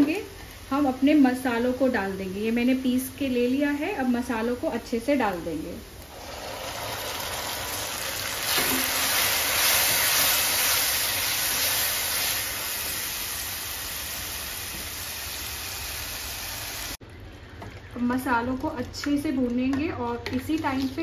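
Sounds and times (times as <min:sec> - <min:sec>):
paste sizzling in hot oil: 0:05.9 - 0:17.0.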